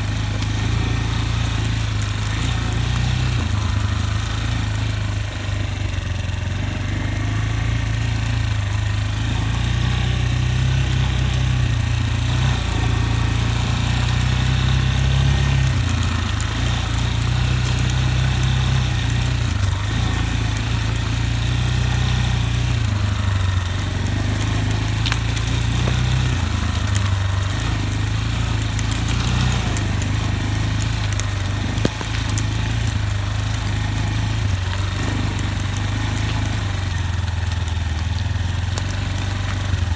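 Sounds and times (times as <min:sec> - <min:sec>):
motorcycle engine at low revs: 0:00.0 - 0:39.9.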